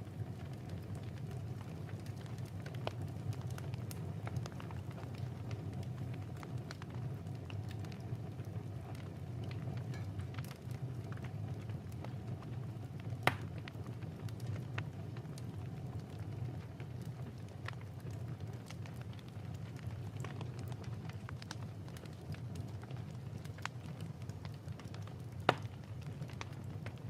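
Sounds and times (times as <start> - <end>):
fire popping: 0.0 - 27.0
fireplace crackling: 0.0 - 27.0.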